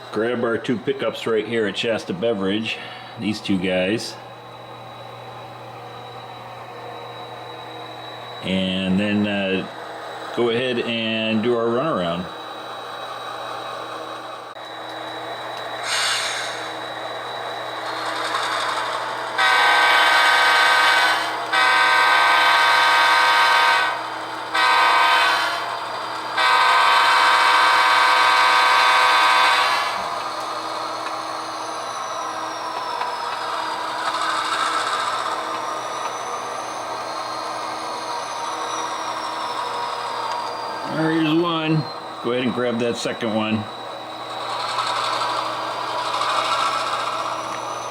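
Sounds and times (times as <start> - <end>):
faint wavering whine: 0.0 - 23.4, 25.7 - 47.9
diesel engine sound: 0.0 - 47.9
model train horn blasts: 19.3 - 30.2.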